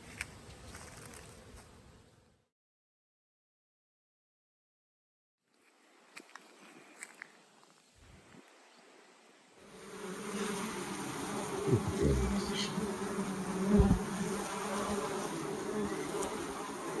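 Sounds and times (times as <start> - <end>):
bees buzzing: 9.6 - 17.0.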